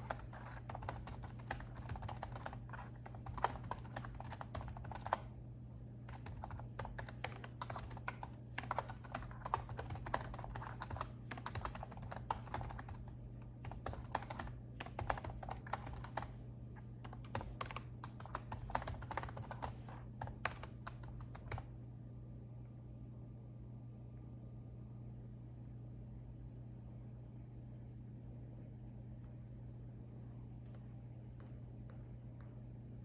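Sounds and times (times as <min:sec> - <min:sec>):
typing on a laptop keyboard: 0:00.0 - 0:05.3, 0:06.1 - 0:16.4, 0:17.0 - 0:21.7
faint low hum: 0:00.0 - 0:33.0.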